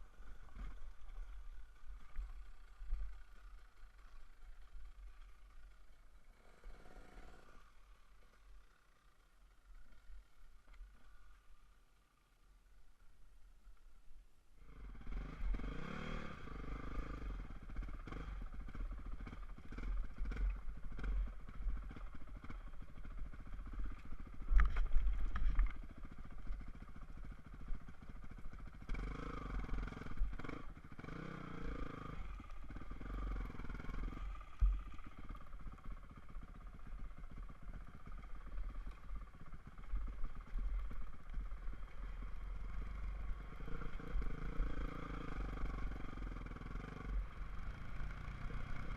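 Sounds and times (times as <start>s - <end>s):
dirtbike engine revving: 14.7s - 24.4s, 28.7s - 36.0s, 39.4s - 48.9s.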